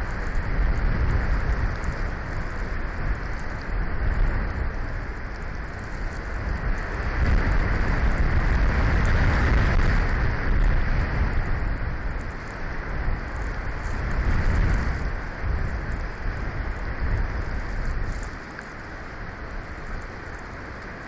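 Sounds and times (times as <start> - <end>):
storm wind gusting on microphone: 0.0 - 21.0.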